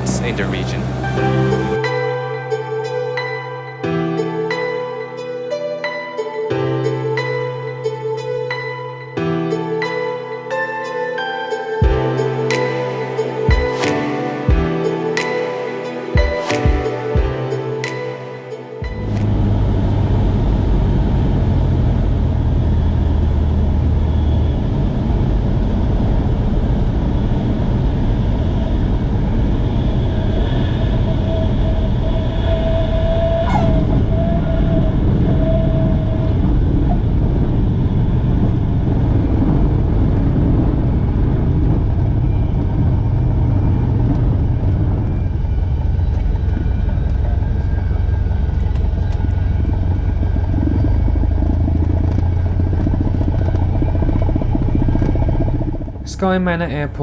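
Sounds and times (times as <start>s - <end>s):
steady mid-pitched tone: 0.0s - 2.4s, 51.9s - 57.0s
aircraft engine and propeller: 44.6s - 56.0s.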